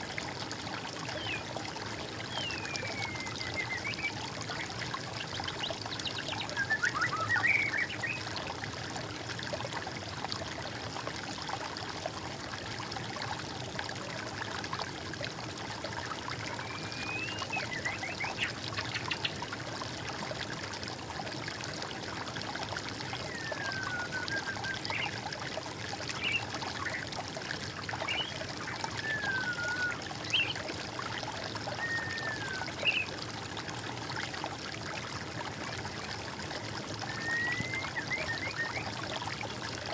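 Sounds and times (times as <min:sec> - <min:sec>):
water trickling: 0:00.0 - 0:39.9
birds whistling: 0:23.3 - 0:24.8, 0:29.0 - 0:30.6, 0:31.8 - 0:33.0, 0:37.1 - 0:38.8.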